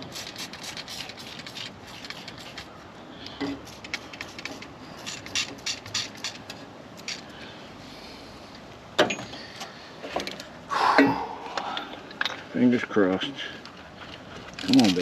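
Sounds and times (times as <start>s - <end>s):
scraping rustle: 13.8s - 15.0s.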